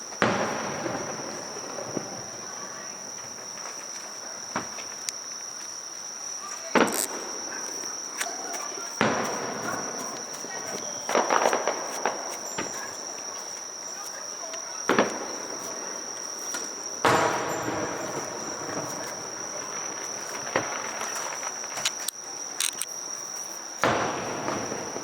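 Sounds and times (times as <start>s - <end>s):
fireworks booming: 0.0s - 5.4s, 6.3s - 22.6s, 23.8s - 25.0s
crickets trilling: 0.0s - 25.0s.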